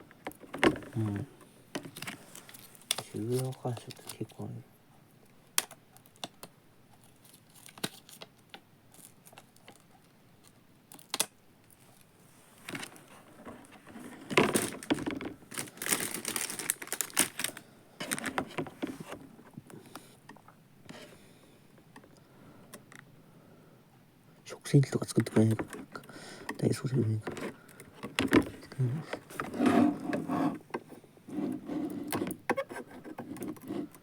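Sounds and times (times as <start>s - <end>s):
packaging crinkling and rustling: 0.3s - 4.6s, 5.6s - 19.6s.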